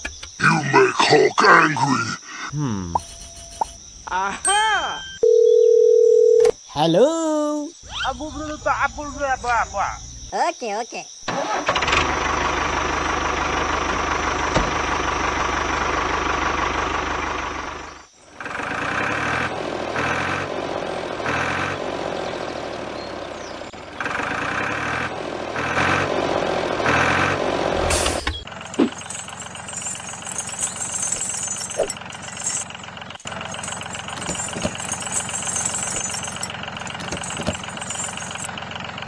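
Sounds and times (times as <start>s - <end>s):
tractor engine running: 11.3s - 39.0s.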